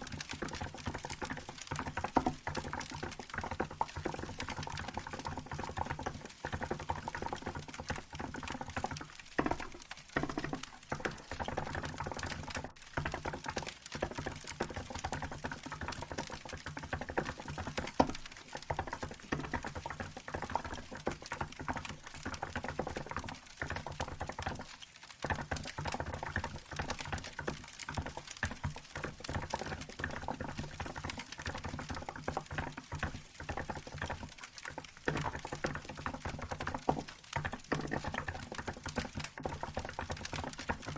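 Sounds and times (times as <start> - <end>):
wood fire crackling: 17.8 - 20.0, 34.3 - 35.7.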